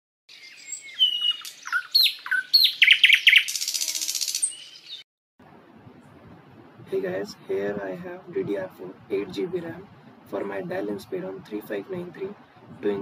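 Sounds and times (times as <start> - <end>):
songbird chirps and whistles: 0.3 - 5.0
bird buzzy trill: 0.9 - 5.0.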